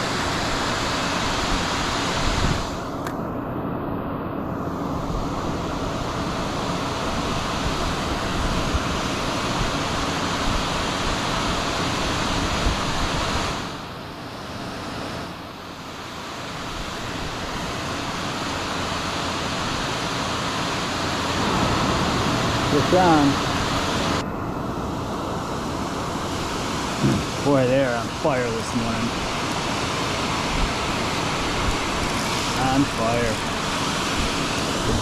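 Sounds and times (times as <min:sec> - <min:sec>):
stream water rushing: 0:16.0 - 0:35.0.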